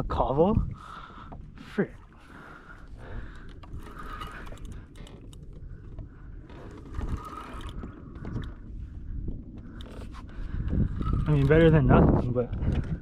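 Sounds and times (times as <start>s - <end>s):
fishing tackle clicking and knocking: 3.2s - 8.6s.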